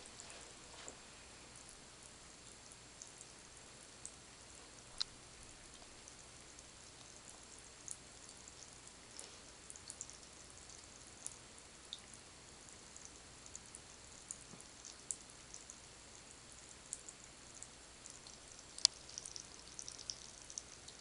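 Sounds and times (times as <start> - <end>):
low steady hiss: 0.0 - 21.0
water drips in bathtub: 1.6 - 21.0.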